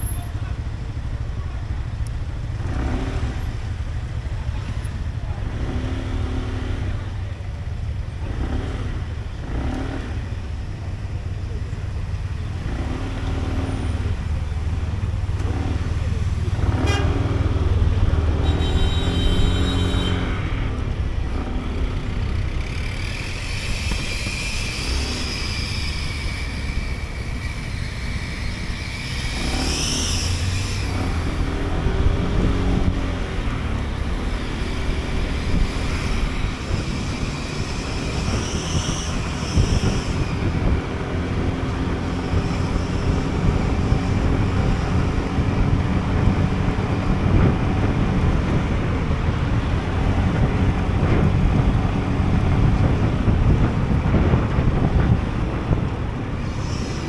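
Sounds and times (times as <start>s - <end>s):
road noise: 0.0s - 57.0s
scooter engine: 0.0s - 57.0s
vehicle horn: 16.6s - 20.8s.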